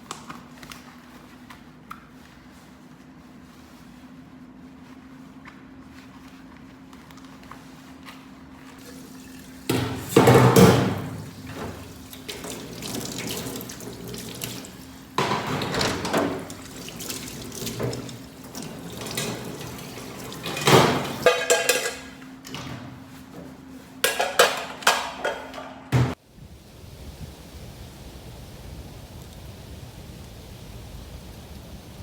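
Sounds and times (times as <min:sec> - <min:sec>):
tap water running into sink: 0:08.8 - 0:21.3.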